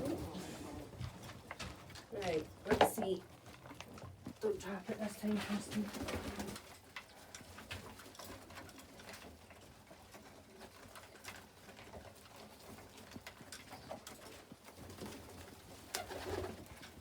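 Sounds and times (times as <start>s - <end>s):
pigeons cooing: 0.0s - 1.3s.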